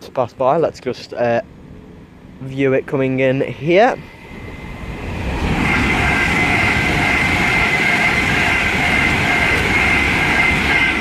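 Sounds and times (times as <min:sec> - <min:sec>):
train wheels rumbling on rail: 0:00.0 - 0:11.0
high steady whine: 0:00.3 - 0:11.0.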